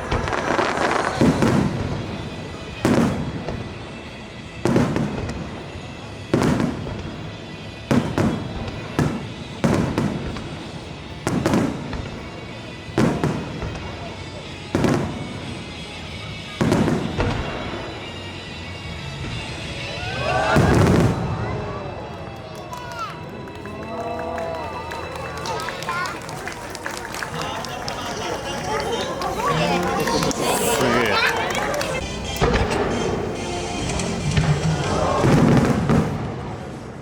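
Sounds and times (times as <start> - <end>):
fireworks shells booming: 0.0 - 18.1, 26.5 - 37.0.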